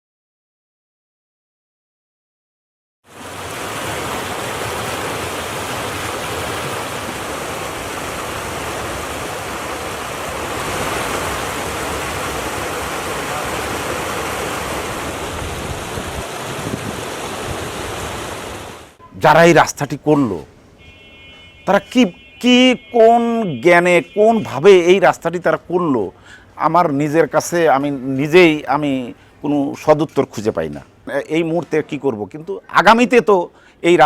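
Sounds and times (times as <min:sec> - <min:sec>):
flowing water rushing: 0:03.1 - 0:20.4.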